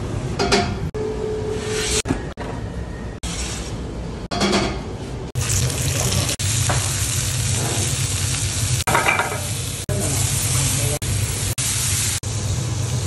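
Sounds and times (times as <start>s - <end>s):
vegetables sizzling in oil: 5.4s - 13.0s.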